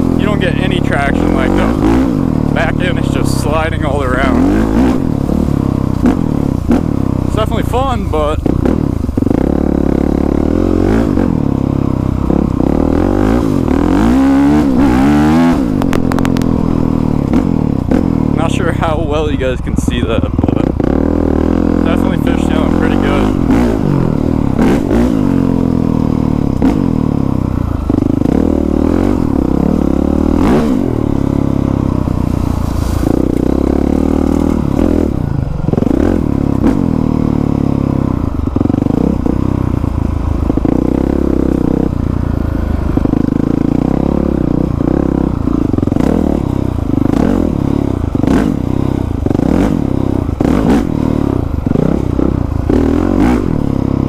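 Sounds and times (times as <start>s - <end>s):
dirt bike engine revving: 0.0s - 54.0s
rear wheel sliding on wet leaves: 32.1s - 33.6s.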